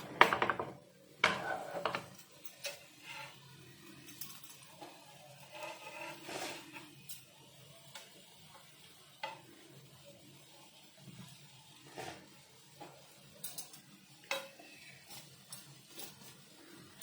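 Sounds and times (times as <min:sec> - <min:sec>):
food sizzling in a pan: 0:00.8 - 0:17.0
spatula scraping a pan: 0:01.2 - 0:03.5, 0:04.1 - 0:07.1, 0:11.8 - 0:13.0.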